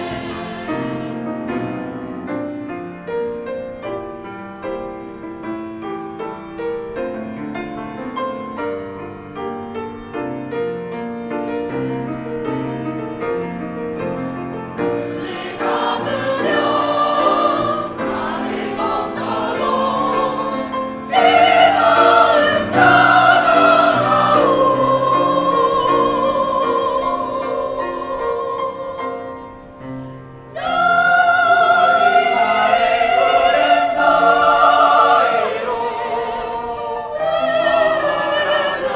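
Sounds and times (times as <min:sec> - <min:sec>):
choir singing: 0:00.0 - 0:02.6, 0:13.2 - 0:38.9
piano accompaniment: 0:00.0 - 0:38.9.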